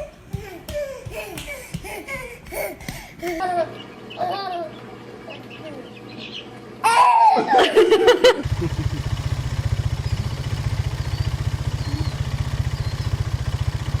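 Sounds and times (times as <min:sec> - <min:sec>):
short pitched cry: 0:06.8 - 0:07.6
engine idling: 0:08.4 - 0:14.0.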